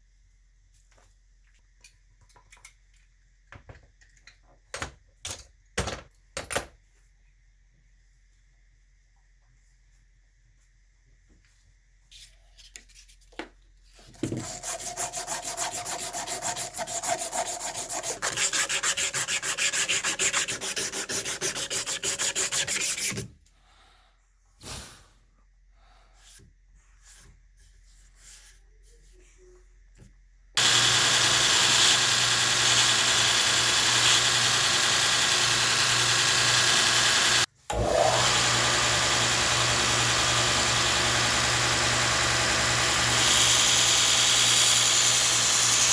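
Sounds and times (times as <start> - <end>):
belt sander running: 30.6 - 45.9.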